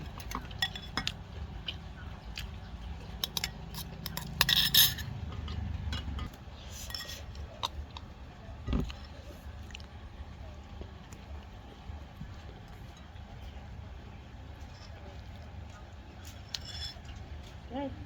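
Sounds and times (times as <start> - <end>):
utensils clinking on dishes: 0.0 - 1.8, 3.1 - 7.8.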